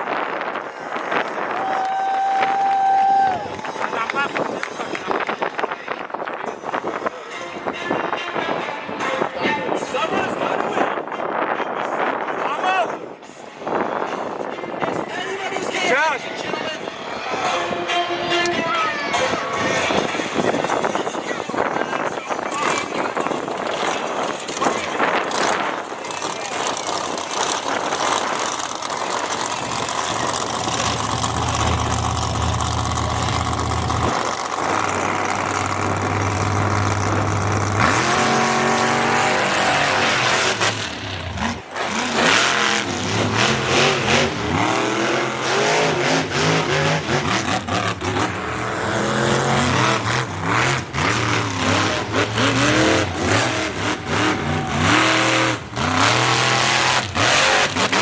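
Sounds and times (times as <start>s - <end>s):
monster truck engine revving: 22.4s - 58.0s.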